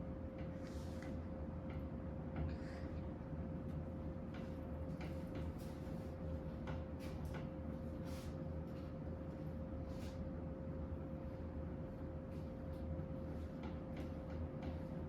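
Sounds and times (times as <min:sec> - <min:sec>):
ceiling fan motor hum: 0:00.0 - 0:15.0
light clicks of fan: 0:00.2 - 0:09.4, 0:12.5 - 0:15.0.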